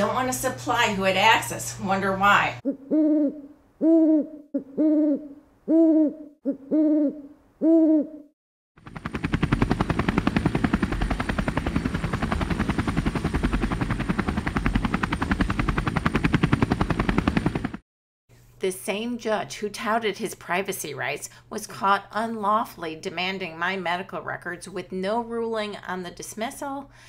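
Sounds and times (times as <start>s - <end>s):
hooting call: 2.6s - 8.3s
rapid pulsing rumble: 8.8s - 17.8s.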